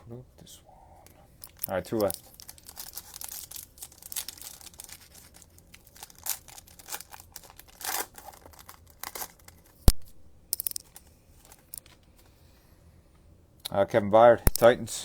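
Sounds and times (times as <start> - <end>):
foil wrapper tearing and crinkling: 1.4 - 11.8
sharp click: 14.5 - 14.7.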